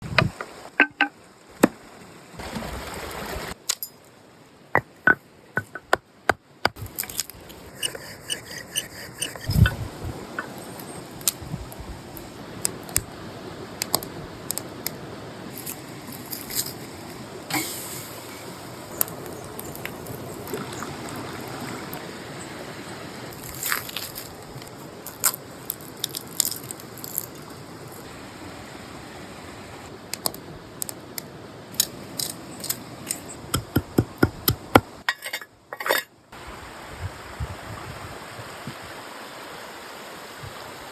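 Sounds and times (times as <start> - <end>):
forest stream rushing: 0.0 - 35.1, 35.8 - 40.9.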